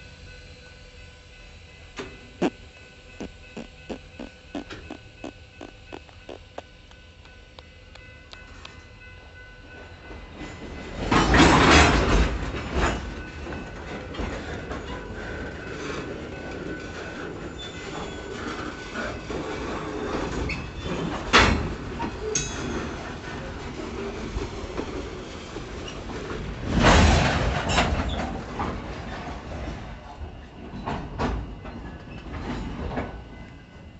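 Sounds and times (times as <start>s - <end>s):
freight train rumble: 0.0s - 33.9s
wheel squeal: 3.2s - 5.0s.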